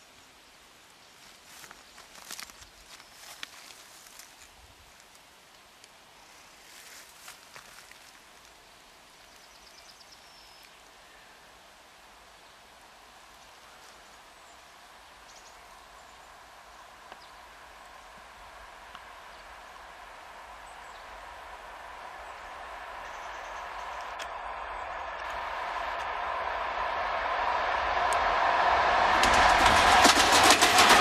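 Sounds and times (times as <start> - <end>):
train rushing noise: 12.8 - 31.0.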